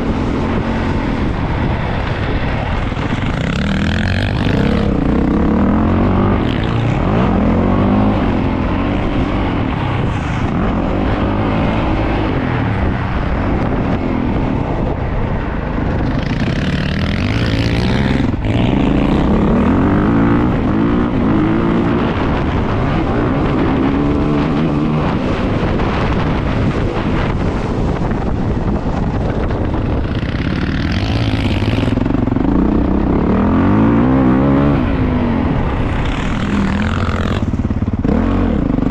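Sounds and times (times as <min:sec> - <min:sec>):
dirt bike engine revving: 0:03.0 - 0:12.5, 0:16.0 - 0:26.1, 0:30.0 - 0:38.9.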